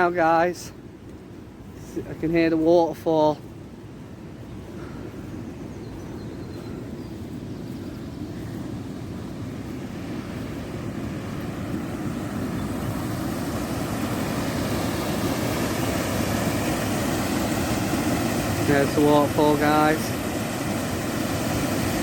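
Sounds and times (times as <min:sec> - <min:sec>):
waterfall rushing water: 0:09.1 - 0:22.0.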